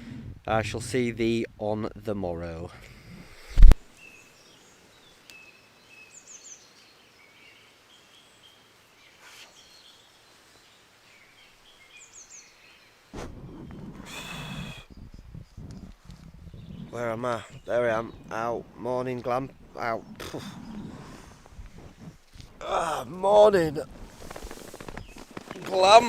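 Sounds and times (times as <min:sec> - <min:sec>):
birds chirping and trilling: 0:04.0 - 0:22.5, 0:24.1 - 0:26.0
loud rustling: 0:23.8 - 0:26.0.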